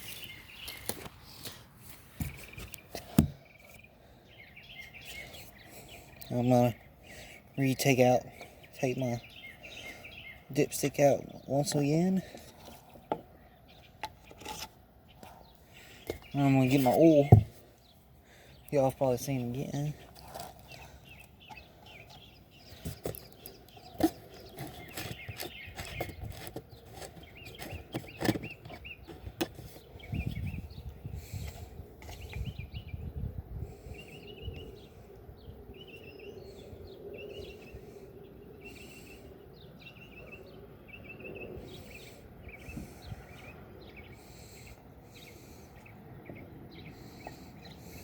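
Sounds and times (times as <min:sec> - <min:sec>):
bird chirping: 0:00.0 - 0:48.0
clicks and knocks of handling: 0:22.8 - 0:29.7.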